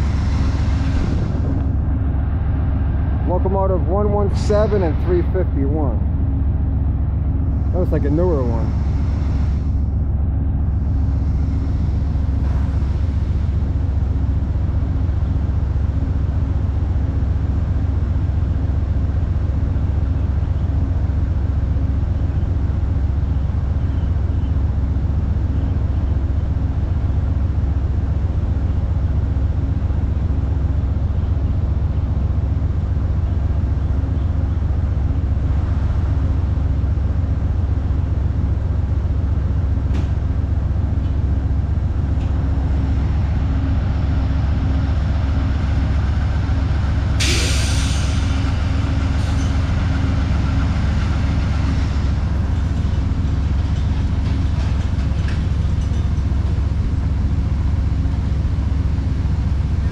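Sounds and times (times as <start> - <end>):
diesel locomotive idling: 0.0 - 59.9
air hiss: 47.2 - 48.4.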